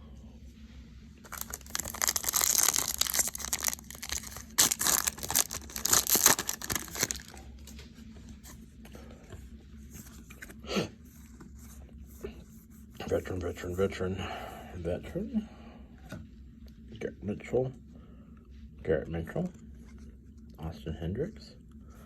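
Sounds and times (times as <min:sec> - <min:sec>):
cards being handled: 0:01.2 - 0:07.4
wrapper tearing and crinkling: 0:01.3 - 0:07.4.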